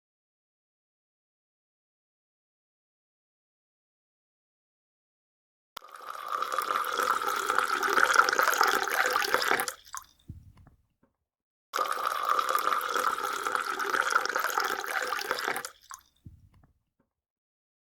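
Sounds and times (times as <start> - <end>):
water pouring: 5.8 - 10.6, 11.8 - 16.6
faint low thump: 10.3 - 10.8, 16.2 - 16.7.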